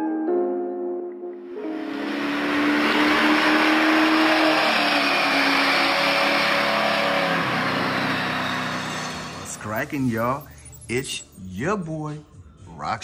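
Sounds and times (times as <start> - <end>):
car engine at high revs: 1.5 - 10.8
loud rushing noise: 1.6 - 10.1.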